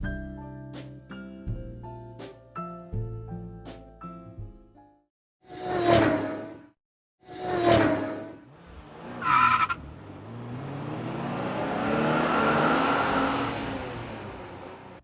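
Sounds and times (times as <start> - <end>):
tire screech: 7.3 - 15.0.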